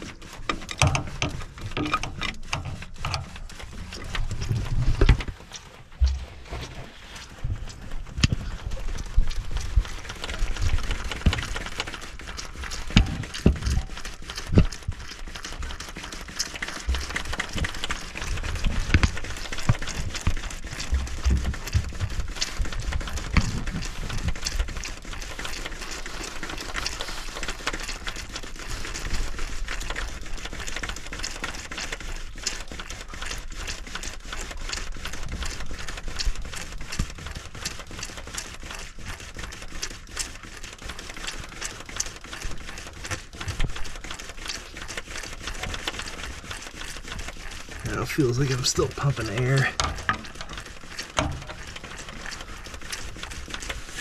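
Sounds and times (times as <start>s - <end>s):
hand pump clicking: 0.0s - 6.8s.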